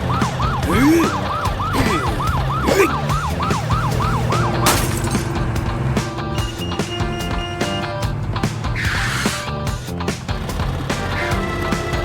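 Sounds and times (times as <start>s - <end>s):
cartoon police siren yelping: 0.0s - 4.6s
background music: 0.0s - 12.0s.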